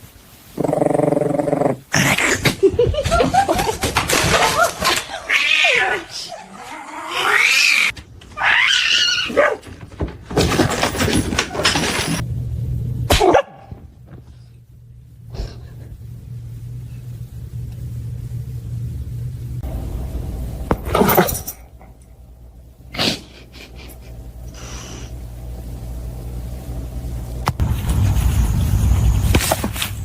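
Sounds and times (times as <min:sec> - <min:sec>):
dog barking and whining: 0:05.6 - 0:09.7
low hum: 0:10.9 - 0:30.0.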